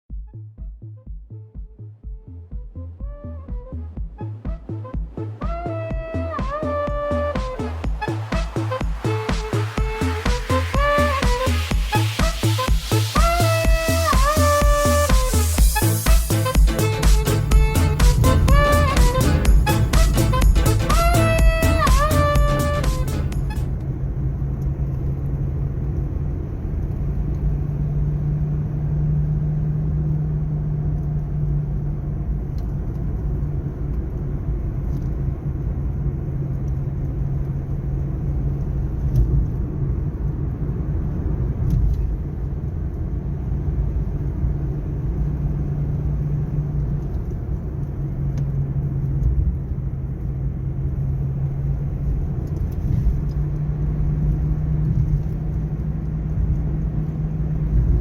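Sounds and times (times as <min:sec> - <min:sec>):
low suspension drone: 0:00.1 - 0:58.0
road rumble: 0:00.1 - 0:58.0.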